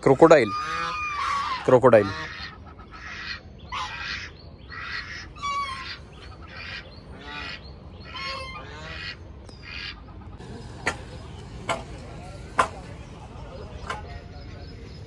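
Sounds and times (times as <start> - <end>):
bird calling: 0.0 - 15.0.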